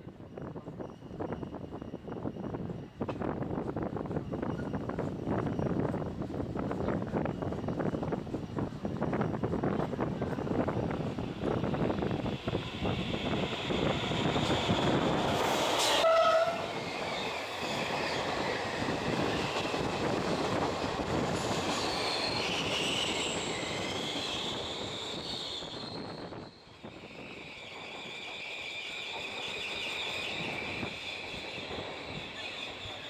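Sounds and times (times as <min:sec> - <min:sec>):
train rumbling in tunnel: 0:00.0 - 0:33.0
train horn blast: 0:15.9 - 0:16.7
high-pitched wheel squeal: 0:21.7 - 0:33.0.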